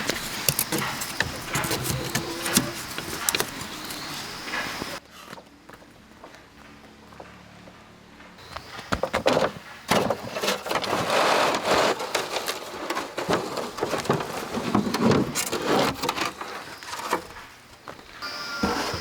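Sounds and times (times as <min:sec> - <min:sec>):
bamboo knocking and cracking: 0:00.0 - 0:04.1
bamboo rustling: 0:00.0 - 0:05.0, 0:08.5 - 0:19.0.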